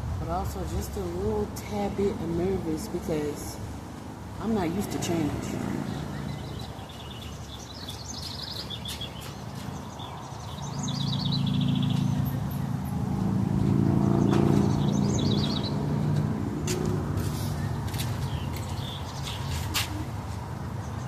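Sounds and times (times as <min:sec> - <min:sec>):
songbirds trilling: 0:04.4 - 0:19.7.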